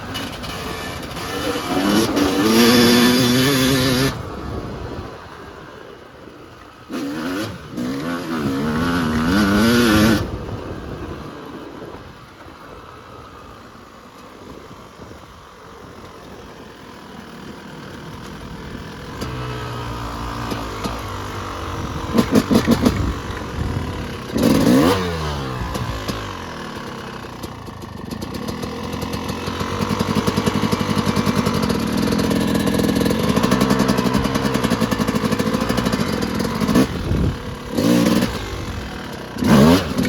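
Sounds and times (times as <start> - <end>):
dirt bike engine revving: 0.0 - 5.1, 6.8 - 10.6, 17.2 - 40.0.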